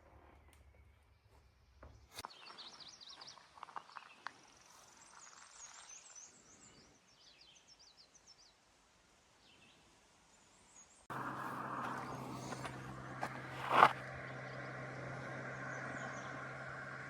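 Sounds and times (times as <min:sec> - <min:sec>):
faint birdsong chirps: 0:00.0 - 0:17.0
vehicle running noise: 0:11.1 - 0:17.0.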